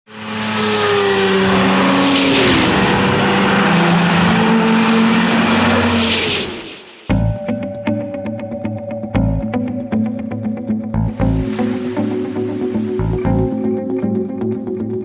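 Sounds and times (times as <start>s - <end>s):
cars driving past at speed: 0.1s - 7.1s.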